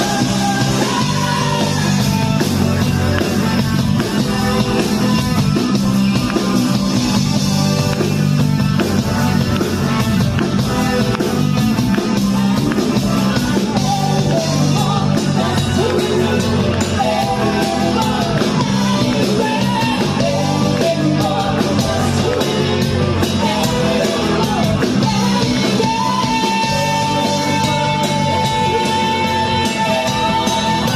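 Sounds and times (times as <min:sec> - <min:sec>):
person singing: 0:00.0 - 0:02.4, 0:13.4 - 0:30.9
rock band music: 0:00.0 - 0:30.9.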